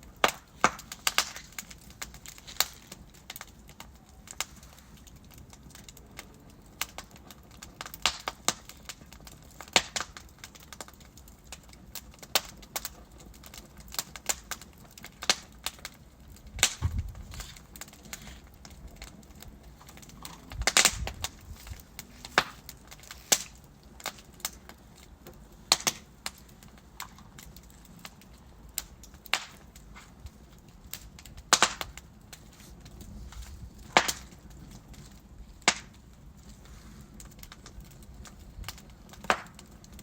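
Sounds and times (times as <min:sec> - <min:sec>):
logs crackling in a fireplace: 0:00.0 - 0:40.0.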